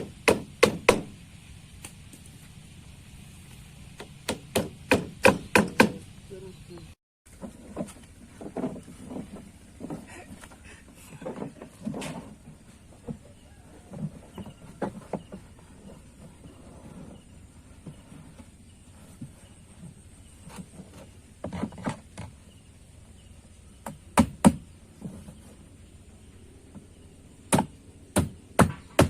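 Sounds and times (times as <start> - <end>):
sharp loud knocks: 0.0 - 1.2, 4.0 - 6.0, 23.8 - 24.6, 27.5 - 29.0
knocks and clatter on plastic: 7.4 - 10.1.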